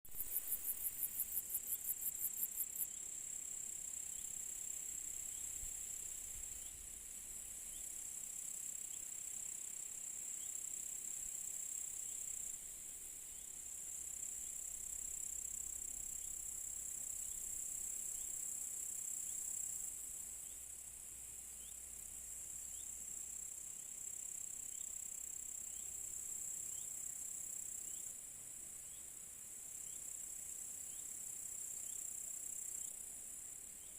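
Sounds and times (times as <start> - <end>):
crickets trilling: 0.1 - 12.6.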